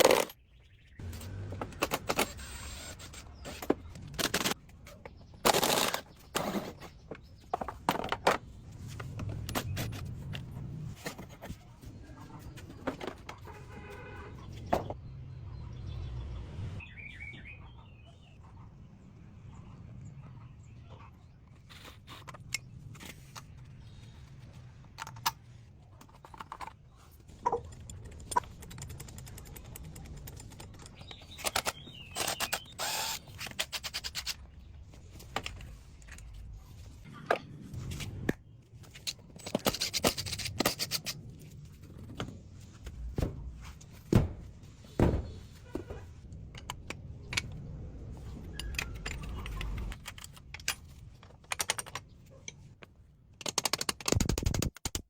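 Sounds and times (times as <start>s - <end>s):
metal parts clinking and knocking: 0.0s - 0.4s, 38.8s - 52.7s.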